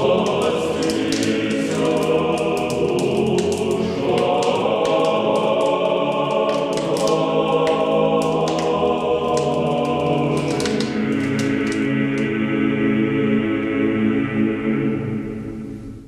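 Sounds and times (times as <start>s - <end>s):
choir singing sustained chords: 0.0s - 16.0s.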